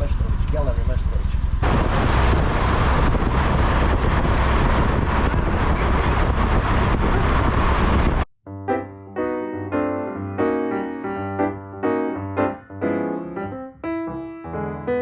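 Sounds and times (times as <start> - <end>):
vehicle road noise: 0.0 - 8.3
wind rushing over microphone: 1.1 - 8.3.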